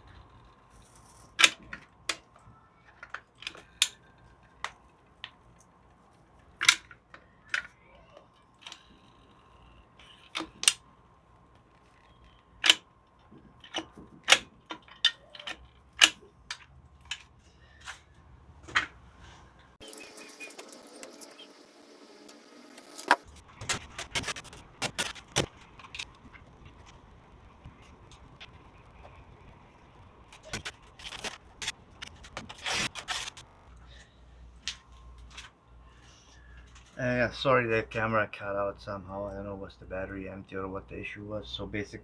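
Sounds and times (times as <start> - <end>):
tools clicking and knocking: 11.8 - 18.0, 22.3 - 27.1, 30.3 - 33.5.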